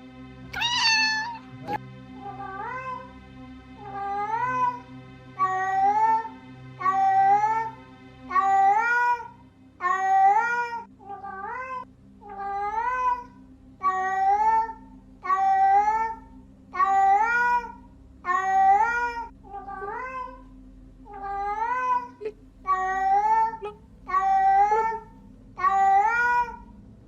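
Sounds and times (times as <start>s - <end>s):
cat meowing: 0.5s - 1.8s, 9.8s - 13.2s, 21.1s - 25.0s.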